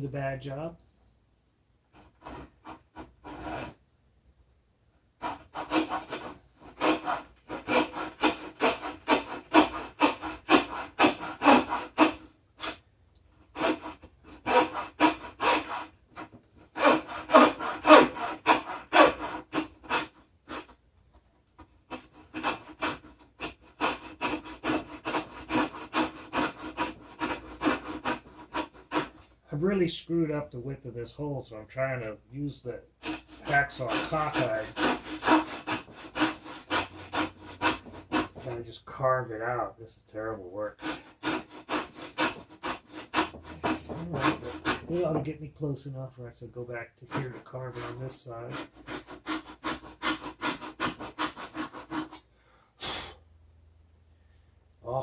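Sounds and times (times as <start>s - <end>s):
hacksaw cutting wood: 2.0s - 3.8s, 5.2s - 12.8s, 13.5s - 20.8s, 21.9s - 29.3s, 33.0s - 38.6s, 40.7s - 45.3s, 47.1s - 52.3s.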